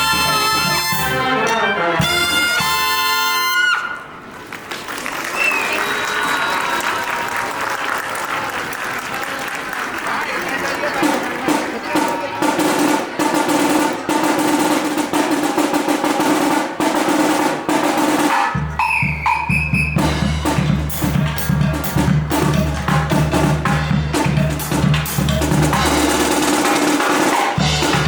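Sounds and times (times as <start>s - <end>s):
snare drum rolls: 11.0s - 28.0s.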